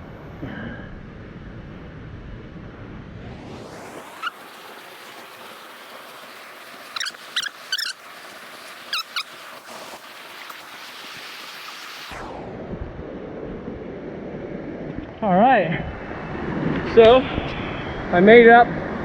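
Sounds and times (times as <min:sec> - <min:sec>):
high warbling chirps: 0:03.6 - 0:05.2, 0:06.9 - 0:08.0, 0:08.9 - 0:09.3
waterfall rushing: 0:04.0 - 0:12.2.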